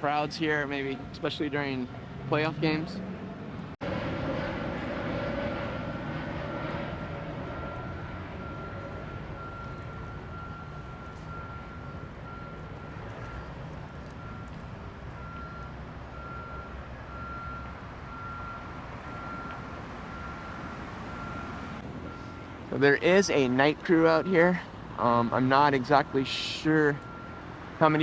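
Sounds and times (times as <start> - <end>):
engine low rumble: 0.0 - 28.0
reversing alarm beeping: 5.4 - 22.4, 23.1 - 28.0.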